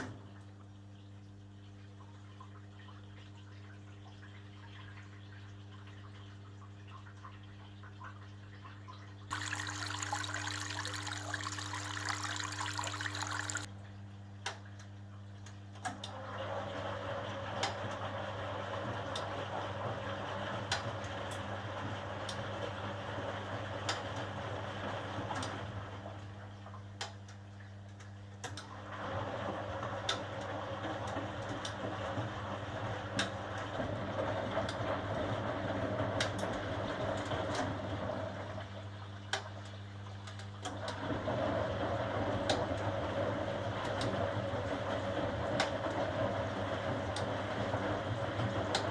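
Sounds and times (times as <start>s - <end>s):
washing machine drum sloshing: 9.3s - 13.7s
water rushing into washing machine: 9.3s - 13.7s, 16.0s - 26.4s, 28.6s - 39.4s, 40.3s - 48.9s.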